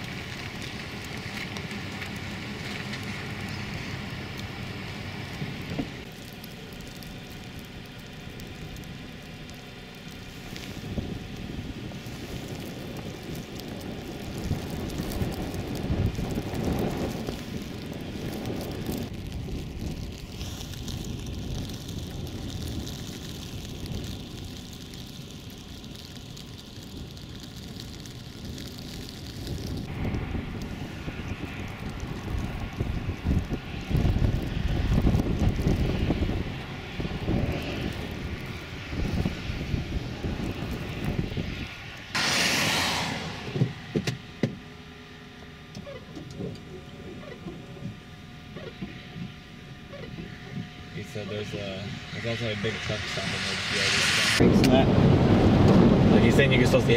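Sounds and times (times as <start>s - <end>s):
vehicle driving through snow: 0.0s - 56.9s
loud hiss: 42.1s - 44.0s, 51.7s - 54.8s.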